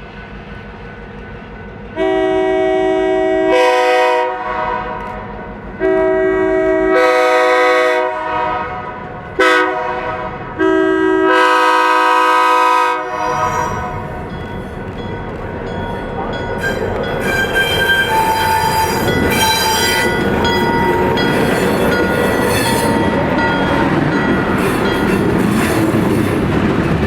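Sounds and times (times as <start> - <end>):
low rumble of train: 0.0 - 27.0
locomotive air horn blasts: 2.0 - 14.2, 16.6 - 23.2.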